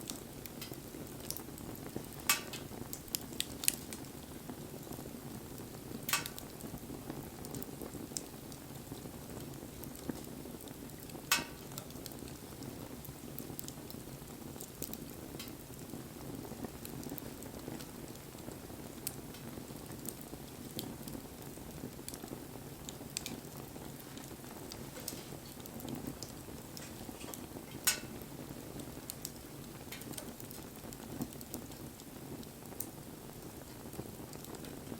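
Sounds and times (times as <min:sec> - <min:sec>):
fire crackling and popping: 0:00.0 - 0:34.9
low rush of flames: 0:00.0 - 0:34.9.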